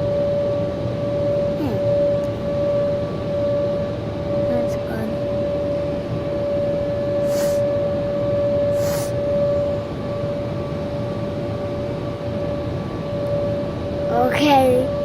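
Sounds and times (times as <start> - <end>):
constant whine: 0.0 - 15.0
short hissing bursts: 7.3 - 7.6, 8.8 - 9.2.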